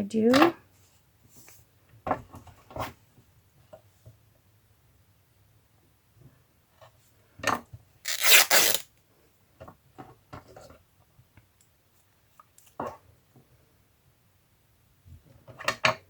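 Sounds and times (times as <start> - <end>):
fabric and paper rasping: 8.1 - 8.8.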